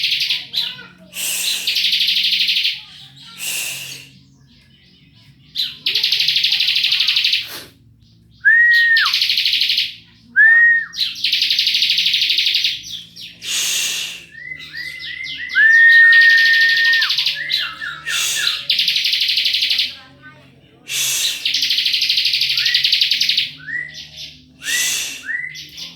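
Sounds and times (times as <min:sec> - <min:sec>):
whistled bird notes: 0:08.3 - 0:20.0, 0:20.9 - 0:25.9.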